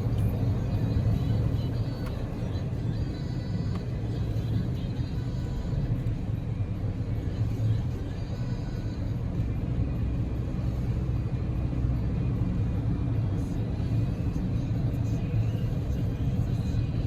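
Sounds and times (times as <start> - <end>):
car cabin engine and road rumble: 0.0 - 17.0.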